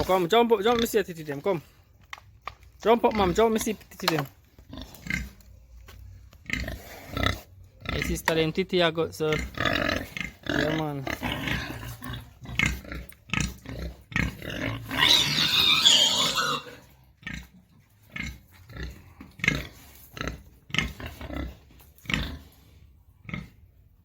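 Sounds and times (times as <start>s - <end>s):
pigs grunting: 3.0s - 5.4s, 6.4s - 8.3s, 9.2s - 23.8s
pig crying: 14.2s - 16.8s.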